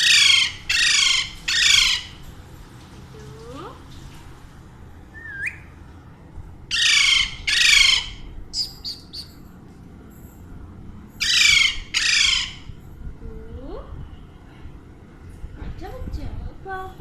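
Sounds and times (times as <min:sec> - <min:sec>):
parakeet squawking: 0:00.0 - 0:02.2, 0:06.7 - 0:09.3, 0:11.2 - 0:12.7
soft bird chirps: 0:08.5 - 0:09.4.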